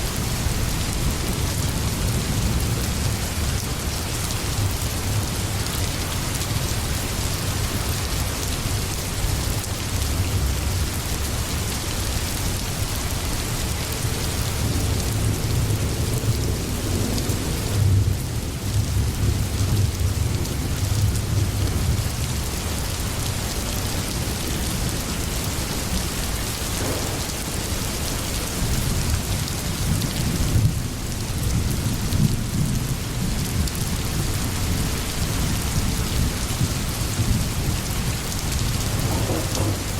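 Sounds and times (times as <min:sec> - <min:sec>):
heavy rain: 0:00.0 - 0:39.9
low rumble of thunder: 0:10.0 - 0:22.9, 0:23.7 - 0:39.9.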